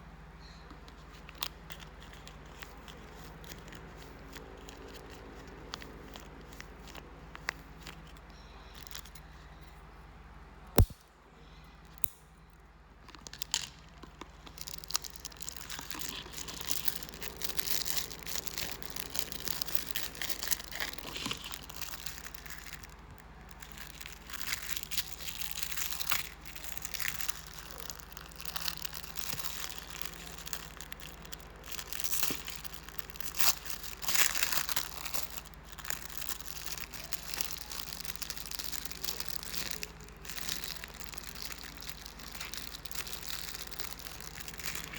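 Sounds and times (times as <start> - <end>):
packaging crinkling and tearing: 0.9 - 8.2, 13.0 - 44.9
sharp click: 10.8 - 11.0.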